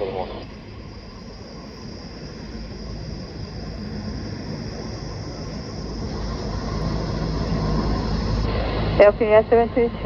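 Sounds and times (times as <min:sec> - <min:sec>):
jet engines rumbling and hissing: 0:00.0 - 0:10.0.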